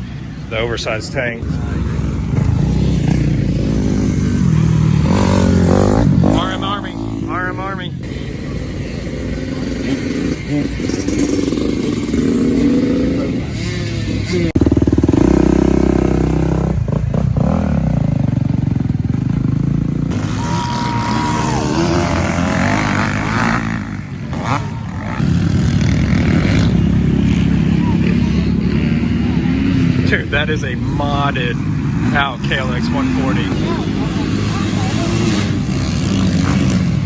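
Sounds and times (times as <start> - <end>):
dirt bike engines revving: 0.0 - 37.0.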